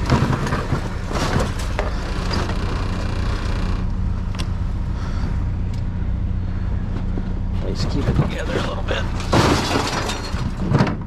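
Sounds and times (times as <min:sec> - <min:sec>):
trash rustling and crackling: 0:00.0 - 0:05.3, 0:06.9 - 0:11.0
vehicle engine idling: 0:00.0 - 0:11.0.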